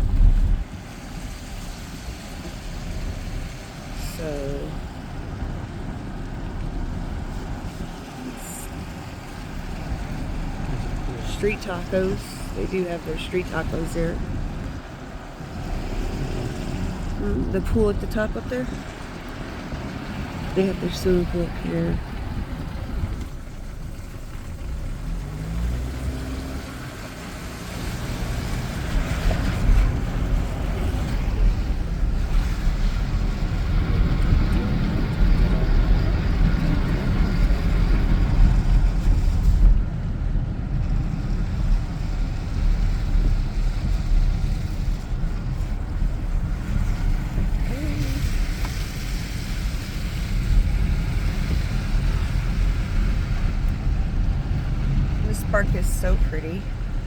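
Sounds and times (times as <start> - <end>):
tyre and engine rumble: 0.0 - 57.0
hiss of air and road: 41.0 - 55.6.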